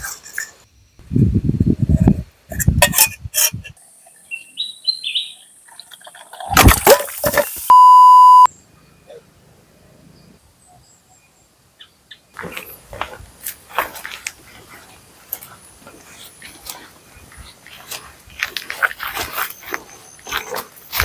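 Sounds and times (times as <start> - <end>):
electronic beep tone: 7.7 - 8.5.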